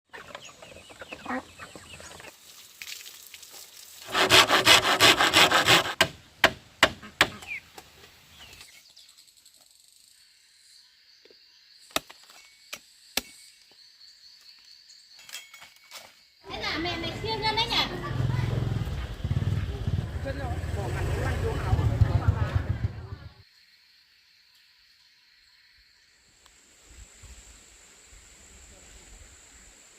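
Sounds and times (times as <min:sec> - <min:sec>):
hand saw cutting wood: 0:04.0 - 0:07.4
sharp knocks: 0:05.0 - 0:07.4.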